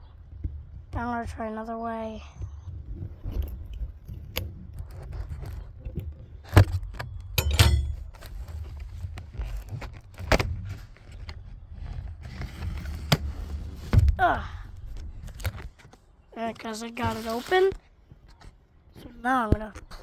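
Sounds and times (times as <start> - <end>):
cardboard cracks and snaps: 4.3 - 7.4, 8.0 - 14.2
cardboard box rustling and scraping: 4.8 - 14.2, 16.6 - 17.8.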